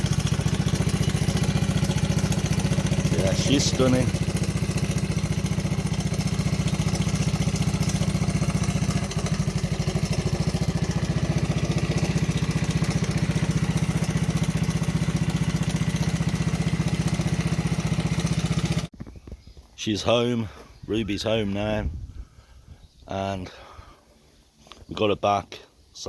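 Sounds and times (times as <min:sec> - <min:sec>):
small motorcycle engine idling: 0:00.0 - 0:18.9.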